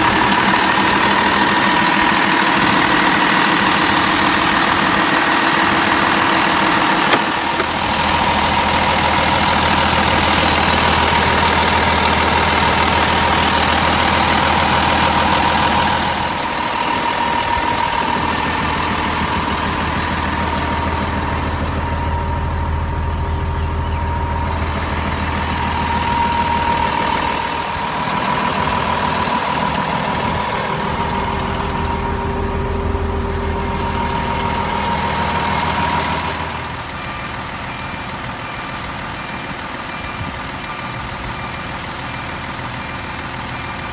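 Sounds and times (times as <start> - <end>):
diesel truck engine running: 0.0 - 43.9
high whine: 6.0 - 37.4.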